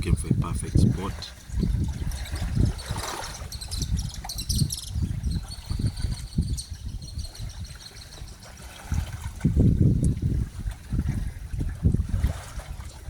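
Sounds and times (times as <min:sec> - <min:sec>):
waves lapping at shore: 0:00.0 - 0:06.7, 0:07.3 - 0:13.0
birds chirping and whistling: 0:02.4 - 0:08.5.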